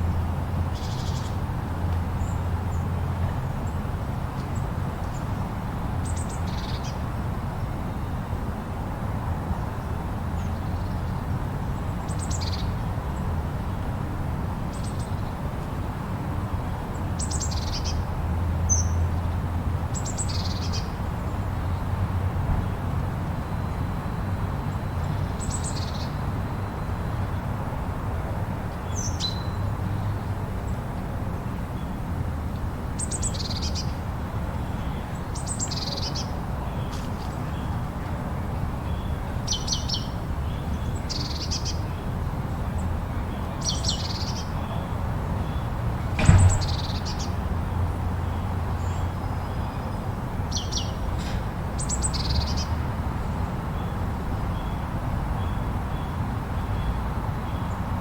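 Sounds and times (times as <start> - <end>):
sharp knock: 46.2 - 47.0.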